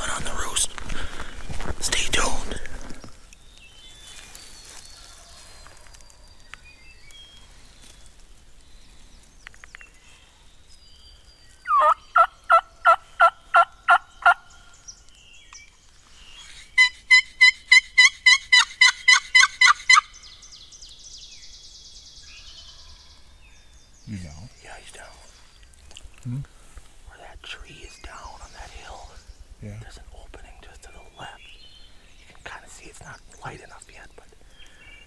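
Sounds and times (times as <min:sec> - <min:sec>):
faint songbird notes: 0:00.0 - 0:18.0, 0:19.7 - 0:35.0
wild turkey yelping: 0:11.6 - 0:14.4, 0:16.8 - 0:20.2.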